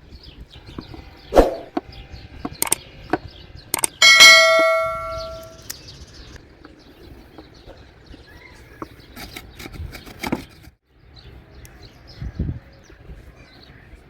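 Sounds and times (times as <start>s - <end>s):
sharp clicks and knocks: 2.4s - 5.6s.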